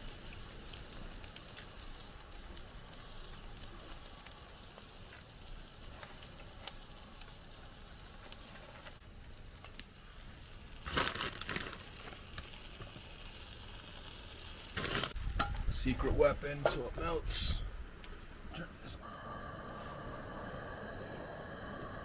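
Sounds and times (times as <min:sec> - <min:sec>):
food sizzling in a pan: 0:00.0 - 0:16.9, 0:19.0 - 0:22.0
crinkling and rustling: 0:00.1 - 0:13.2, 0:14.7 - 0:16.9.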